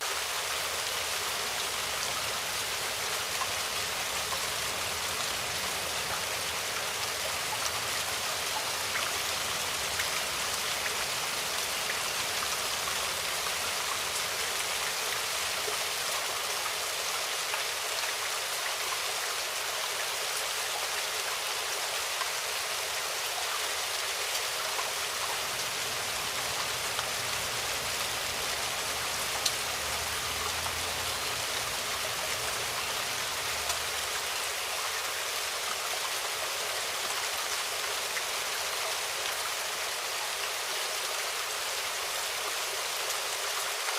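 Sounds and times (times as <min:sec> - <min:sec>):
rain falling: 0:00.0 - 0:43.9.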